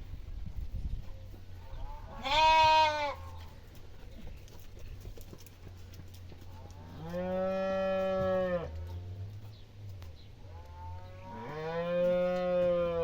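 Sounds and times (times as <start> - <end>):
cow mooing: 7.0 - 8.8, 10.7 - 13.0.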